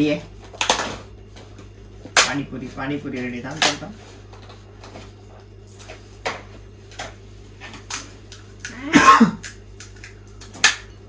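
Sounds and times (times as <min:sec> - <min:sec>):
person clearing throat: 0:08.7 - 0:09.5.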